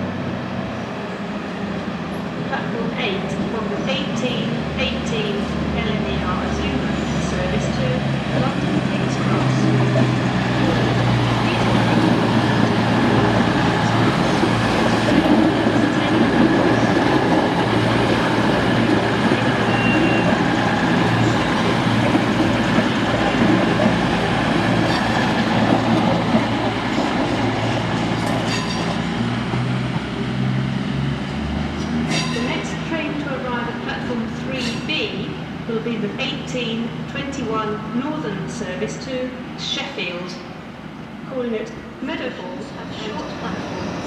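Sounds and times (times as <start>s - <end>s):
train wheels on rails: 3.3s - 35.4s.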